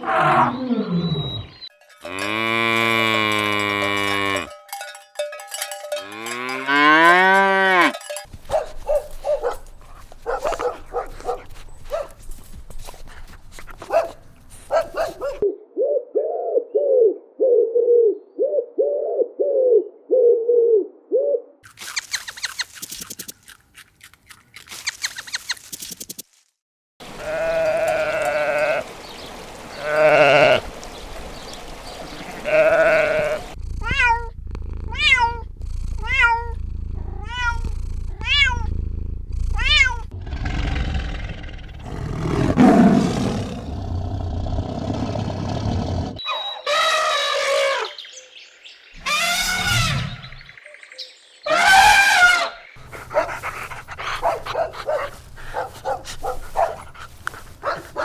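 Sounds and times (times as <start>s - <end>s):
farm animal calls: 6.7s - 15.4s, 27.0s - 34.2s, 46.2s - 48.3s, 49.0s - 50.6s, 51.4s - 58.0s
low hum: 33.6s - 40.1s.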